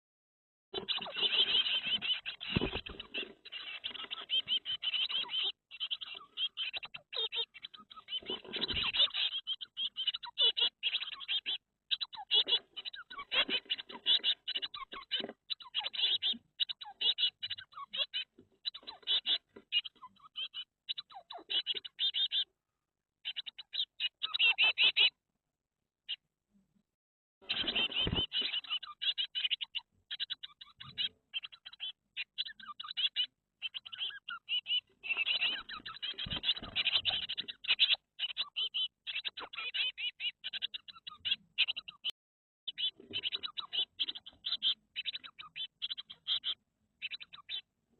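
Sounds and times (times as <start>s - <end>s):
rustling and scratching in nest: 0.8s - 5.4s, 7.8s - 9.4s, 12.4s - 19.8s, 27.5s - 28.7s, 35.0s - 37.8s
chicks begging chirps: 0.8s - 22.6s, 23.2s - 25.2s, 27.4s - 42.1s, 42.7s - 47.7s.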